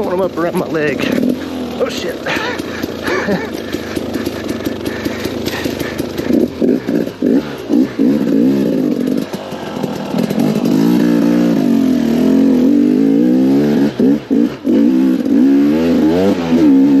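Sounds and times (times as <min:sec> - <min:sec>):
two-stroke motorcycle engine revving: 0:00.0 - 0:17.0.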